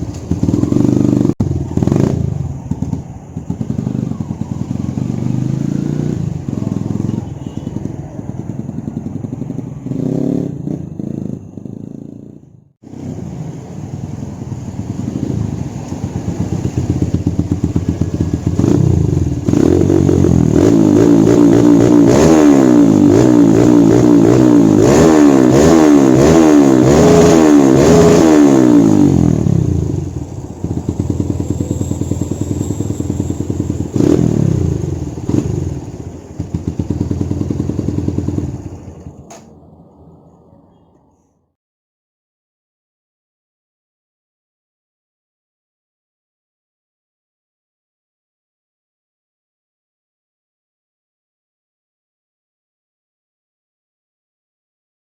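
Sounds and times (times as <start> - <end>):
motorcycle engine revving: 0.0 - 39.5.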